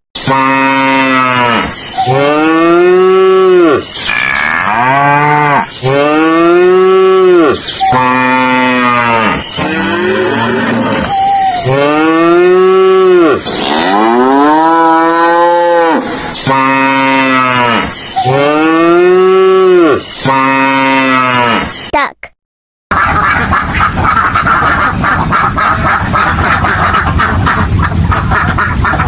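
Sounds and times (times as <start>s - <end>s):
cows mooing: 0.2s - 21.7s
ducks quacking: 22.9s - 29.0s.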